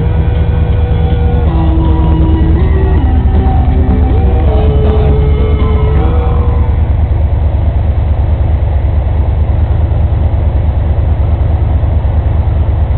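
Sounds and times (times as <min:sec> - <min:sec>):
rock music: 0:00.0 - 0:07.0
vehicle engine rumbling: 0:00.0 - 0:12.9.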